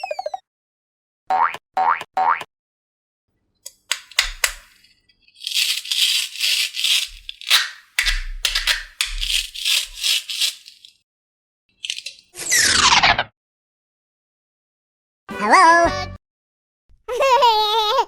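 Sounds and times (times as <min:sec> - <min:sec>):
sharp clicks: 0:03.7 - 0:04.8.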